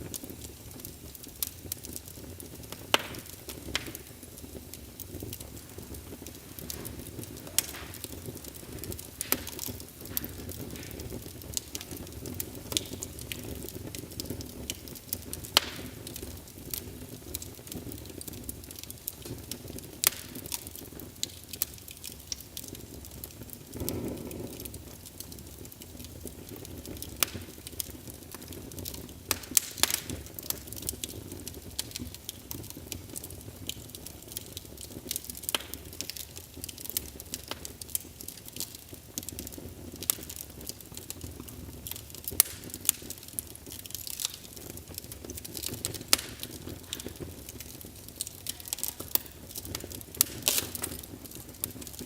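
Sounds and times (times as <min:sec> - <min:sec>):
burning wood crackling and popping: 0:00.0 - 0:52.0
roar of flames: 0:00.0 - 0:52.0.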